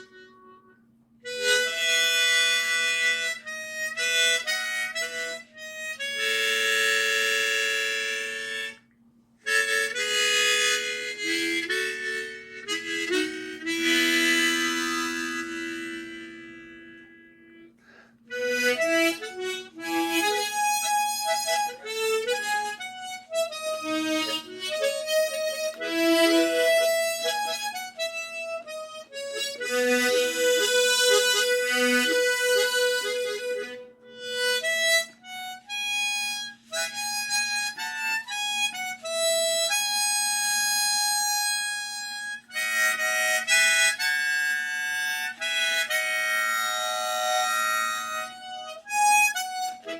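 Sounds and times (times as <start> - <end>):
harmonica melody: 0.0 - 49.9.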